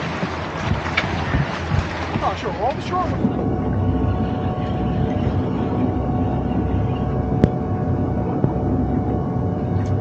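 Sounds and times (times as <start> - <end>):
boat engine running: 0.0 - 10.0.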